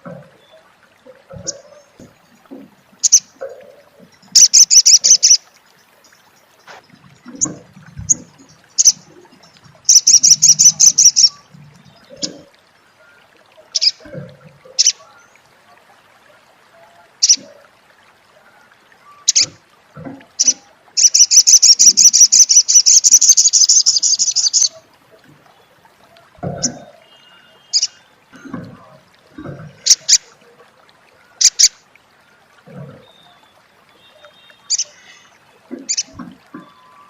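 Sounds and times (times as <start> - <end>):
bird chirping: 4.3 - 5.4, 6.7 - 12.4, 20.4 - 24.8
bird chattering trill: 4.4 - 5.4, 9.9 - 11.4, 20.4 - 24.7.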